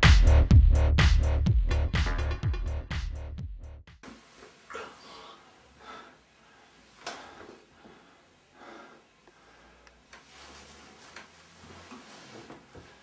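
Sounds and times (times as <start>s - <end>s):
man breathing heavily: 4.7s - 10.1s.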